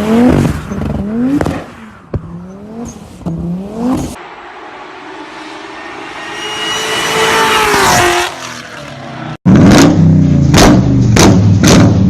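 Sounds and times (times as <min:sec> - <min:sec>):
car engine passing: 0:00.0 - 0:09.4.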